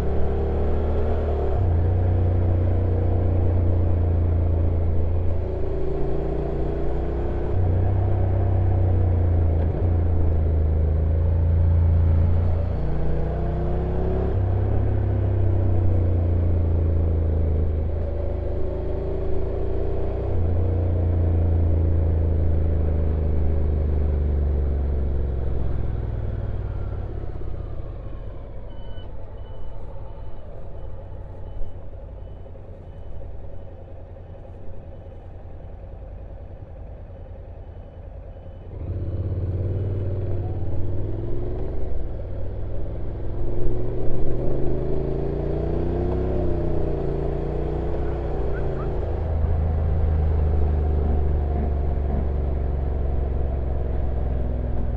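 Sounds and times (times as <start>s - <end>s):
faint high beep: 27.6s - 33.8s.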